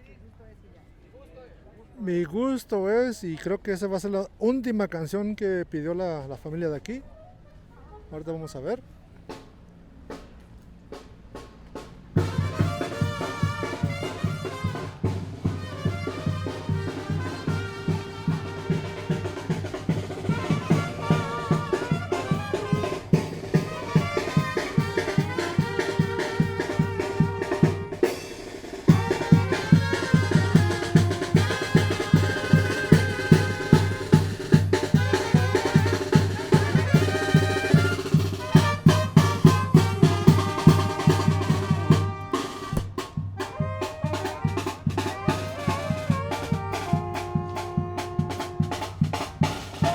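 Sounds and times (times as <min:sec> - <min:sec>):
bass drum and snare beat: 0:09.3 - 0:49.9
brass band melody: 0:11.3 - 0:49.9.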